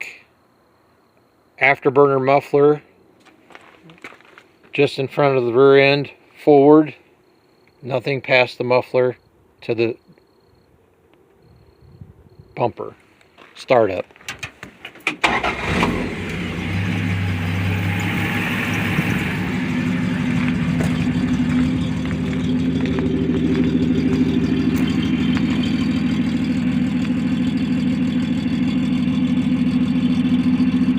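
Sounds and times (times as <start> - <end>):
car engine cranking: 14.3 - 30.9
car engine idling: 14.4 - 30.9.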